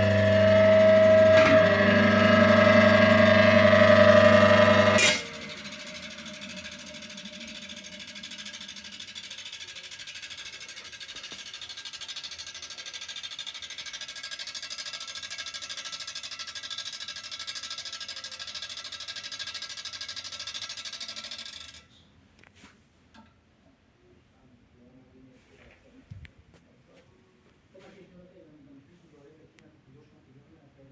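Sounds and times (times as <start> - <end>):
washing machine motor humming: 0.0 - 22.0.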